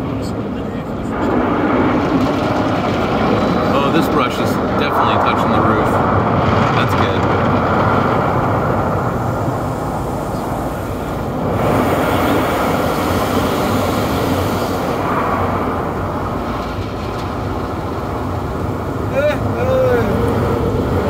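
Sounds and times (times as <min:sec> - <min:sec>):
car wash brushes scrubbing: 0:07.8 - 0:19.0
high hiss: 0:08.5 - 0:16.6.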